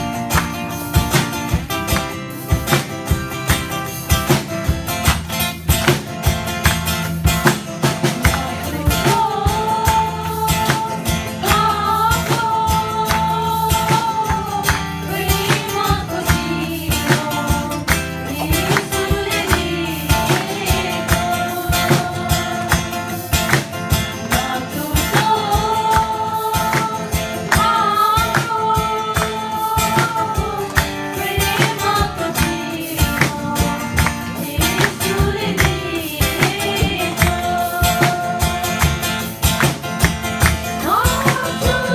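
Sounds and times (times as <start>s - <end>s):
guitar: 0.0s - 41.9s
steady percussive beat: 0.0s - 41.9s
person singing: 24.3s - 39.0s, 40.8s - 41.9s.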